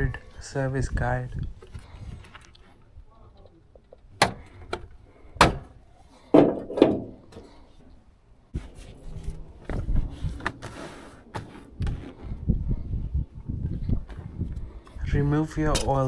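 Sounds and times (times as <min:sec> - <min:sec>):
handling noise with thumps: 0:03.8 - 0:07.6
sharp knocks and clunks: 0:04.2 - 0:07.5.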